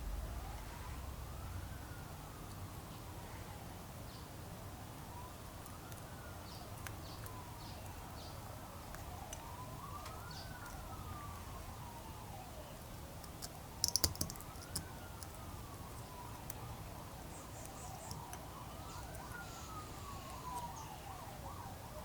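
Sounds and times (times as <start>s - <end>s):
distant siren wailing: 0.0s - 22.0s
sharp clicks: 13.2s - 16.6s, 17.6s - 19.4s.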